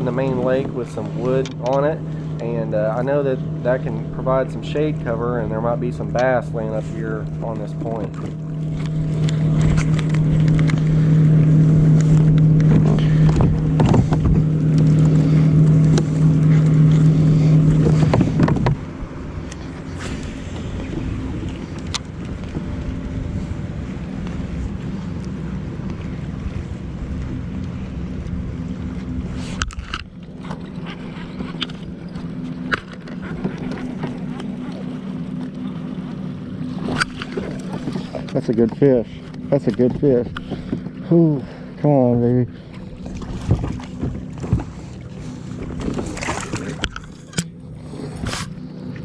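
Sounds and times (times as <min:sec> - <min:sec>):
motorboat engine humming: 0:00.0 - 0:49.0.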